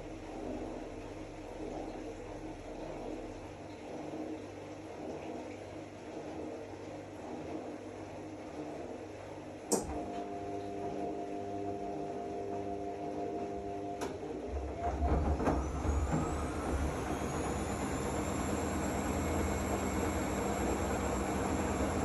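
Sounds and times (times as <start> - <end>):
washing machine hum: 0.0 - 22.0
drum motor rumble and whine: 13.4 - 22.0.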